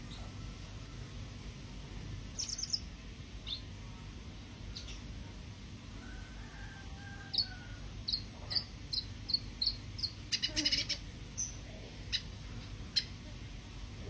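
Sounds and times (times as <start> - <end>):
steady low hum: 0.0 - 14.0
songbird chirping: 2.3 - 13.3.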